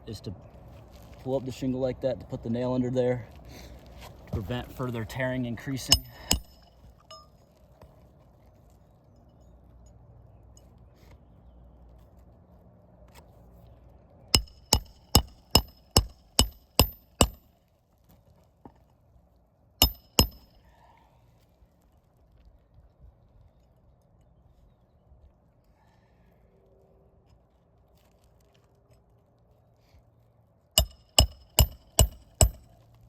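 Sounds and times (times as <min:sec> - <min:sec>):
hammer striking metal: 0:05.9 - 0:07.2, 0:14.4 - 0:17.4, 0:19.8 - 0:20.6, 0:30.8 - 0:32.7.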